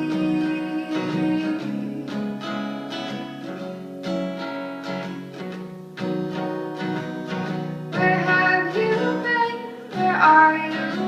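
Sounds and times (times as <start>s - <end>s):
person singing: 0.0s - 2.6s, 8.0s - 11.0s
acoustic guitar chords: 0.0s - 11.0s.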